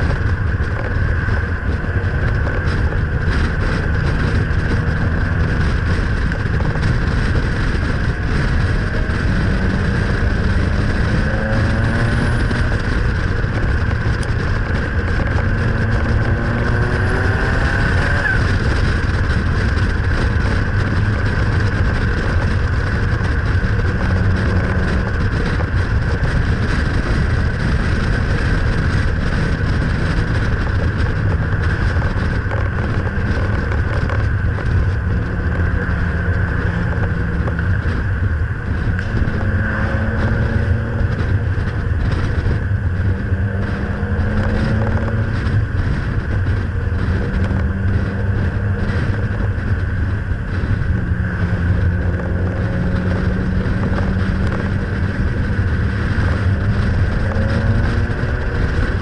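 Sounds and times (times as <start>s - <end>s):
car engine cruising: 0.0s - 59.0s
wind rushing over microphone: 0.0s - 59.0s.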